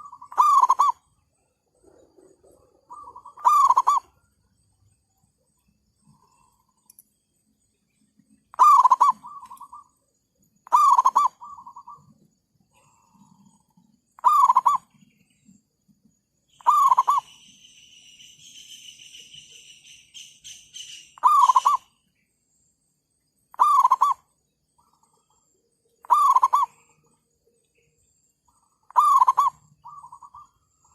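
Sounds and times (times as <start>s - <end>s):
doves cooing: 0.0s - 4.4s, 8.5s - 10.0s, 10.6s - 15.2s, 16.6s - 17.4s, 21.2s - 21.9s, 23.5s - 25.2s, 26.0s - 27.1s, 28.5s - 30.9s.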